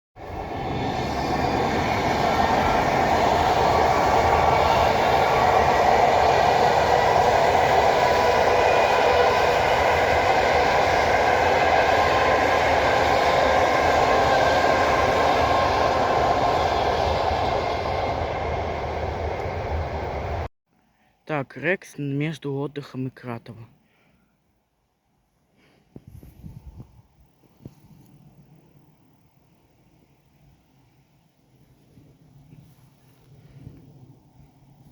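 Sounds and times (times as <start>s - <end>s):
train wheels rushing on rail: 0.2s - 20.5s.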